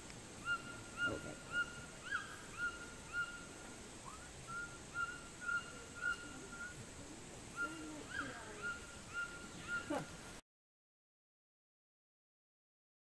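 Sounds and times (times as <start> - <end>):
faint high hiss: 0.0 - 10.4
bird whistled calls: 0.4 - 3.5, 4.1 - 6.8, 7.6 - 9.9.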